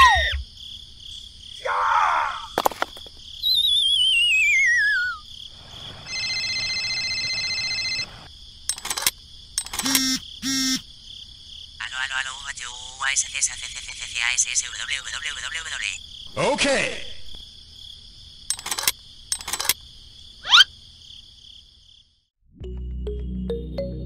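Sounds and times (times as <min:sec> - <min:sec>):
insect chirring: 0:02.3 - 0:16.3
wavering whistle sliding down: 0:03.5 - 0:05.2
electronic phone ringtone: 0:06.0 - 0:08.3
short clicks and blips: 0:08.7 - 0:10.7, 0:18.5 - 0:19.8.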